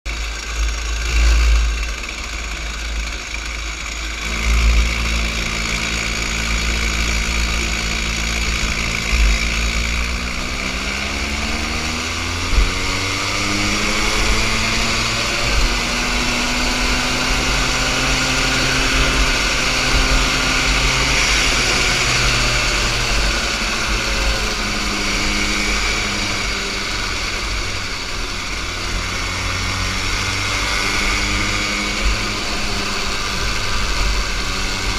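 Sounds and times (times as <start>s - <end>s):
kart engine accelerating: 0.1s - 34.9s
steady low rumble: 0.3s - 29.2s.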